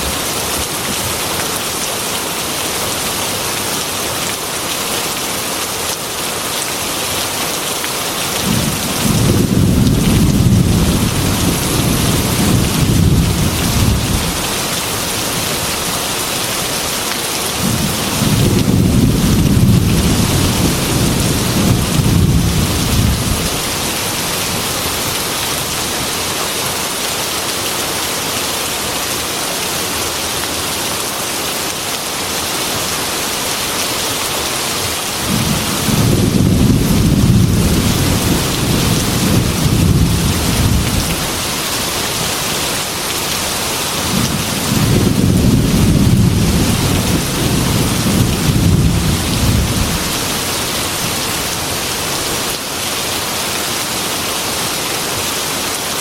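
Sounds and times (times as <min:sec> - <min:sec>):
heavy rain on glass window: 0:00.0 - 0:27.6, 0:34.6 - 0:53.4
thunder rumbling: 0:08.4 - 0:14.7, 0:17.6 - 0:25.2, 0:35.2 - 0:41.4, 0:44.0 - 0:50.3.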